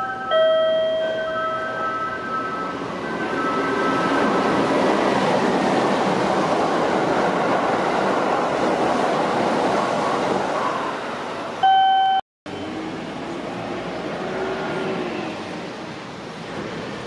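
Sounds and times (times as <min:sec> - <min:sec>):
train rumbling: 0:00.0 - 0:11.6, 0:12.5 - 0:17.0
short beep: 0:11.6 - 0:12.2.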